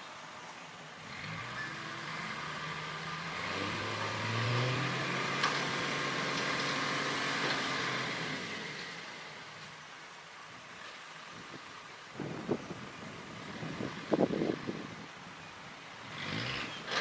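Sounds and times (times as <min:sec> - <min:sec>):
heavy machine engine under load: 0:01.0 - 0:09.7, 0:16.1 - 0:17.0.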